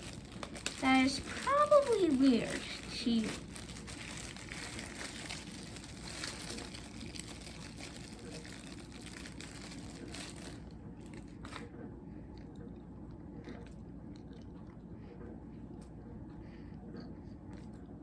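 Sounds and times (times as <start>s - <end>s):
slime squelching wet crackles: 0.0s - 11.6s.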